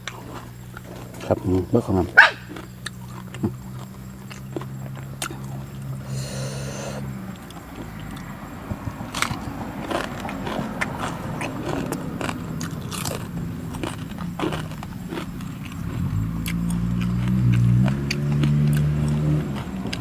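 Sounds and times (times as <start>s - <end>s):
person chewing crunchy food: 0.0s - 20.0s.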